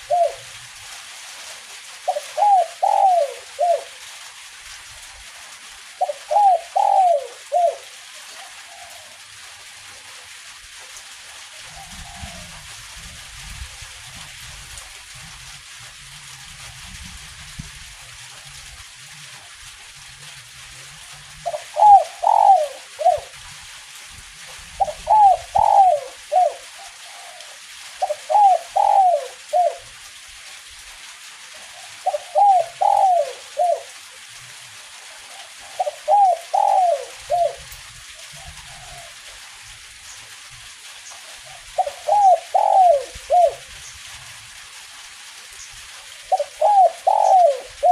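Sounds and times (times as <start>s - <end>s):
dove cooing: 0.0s - 0.6s, 2.0s - 4.0s, 6.0s - 9.2s, 11.6s - 12.7s, 21.4s - 23.4s, 24.8s - 29.9s, 31.6s - 34.0s, 35.2s - 39.4s, 41.4s - 43.7s, 46.2s - 47.9s
light drizzle hiss: 0.0s - 47.9s.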